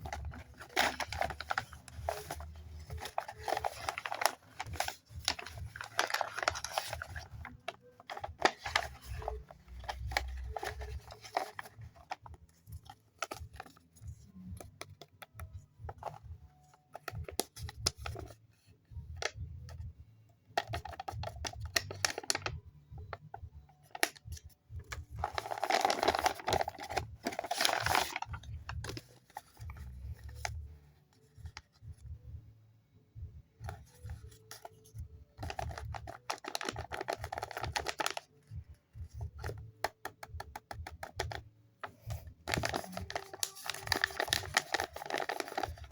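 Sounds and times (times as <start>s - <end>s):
paper bag crinkling and tearing: 0.0s - 12.2s, 25.2s - 30.5s, 35.4s - 38.2s, 42.5s - 45.9s.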